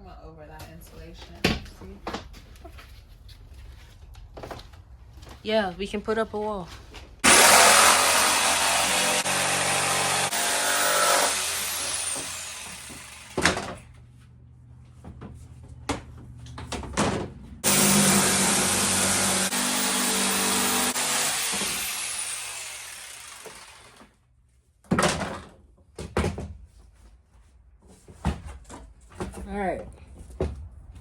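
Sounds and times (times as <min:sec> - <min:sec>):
power saw cutting wood: 0:07.2 - 0:13.8, 0:17.6 - 0:24.1.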